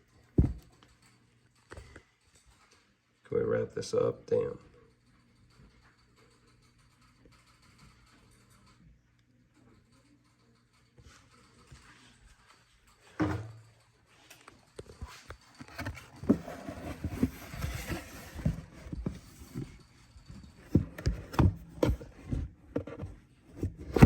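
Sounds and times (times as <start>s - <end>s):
objects knocking and tapping: 0.1s - 2.9s, 13.0s - 13.8s, 14.8s - 24.0s.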